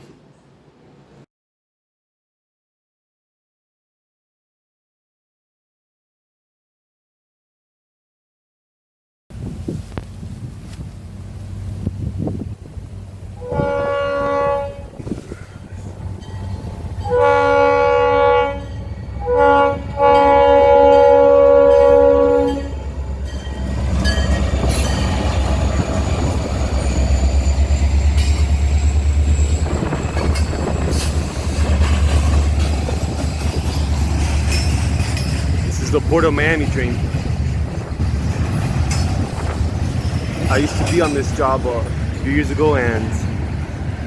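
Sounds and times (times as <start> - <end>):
train rumbling past: 9.3 - 44.0
locomotive air horn blasts: 13.4 - 15.1, 17.0 - 22.9
wheels clattering on rail joints: 22.9 - 44.0.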